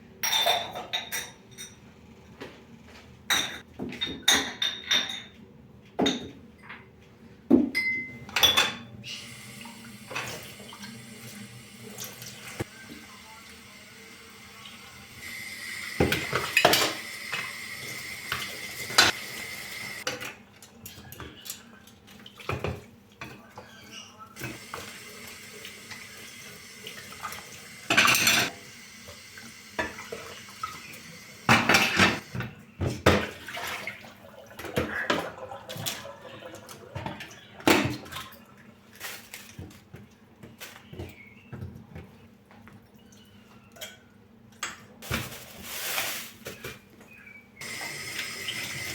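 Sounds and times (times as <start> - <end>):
dishes and cutlery clattering: 0.2 - 1.8, 3.3 - 5.4, 7.8 - 8.9, 16.0 - 17.5, 27.9 - 28.5, 31.5 - 33.4
tap running: 14.6 - 20.1, 24.4 - 32.5, 47.6 - 48.9.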